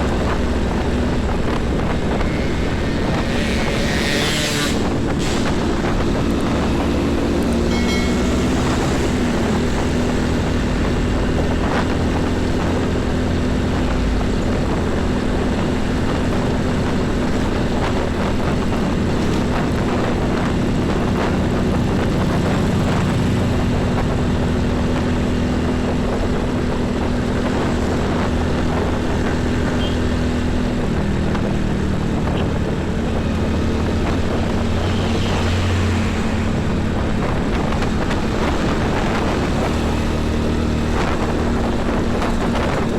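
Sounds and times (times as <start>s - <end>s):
diesel truck engine drone: 0.0s - 42.9s
tyre and traffic noise: 0.0s - 42.9s.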